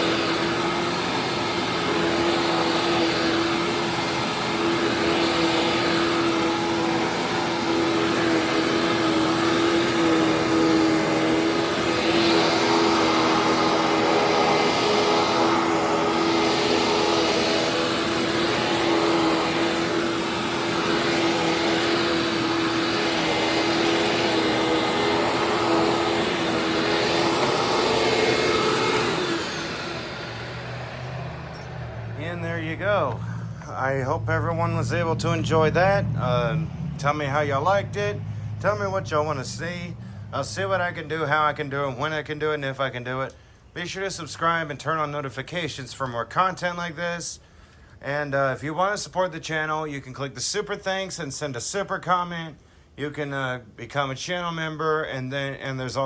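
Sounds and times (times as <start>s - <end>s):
vacuum motor winding down: 0.0s - 41.5s
vacuum cleaner running: 0.0s - 42.3s.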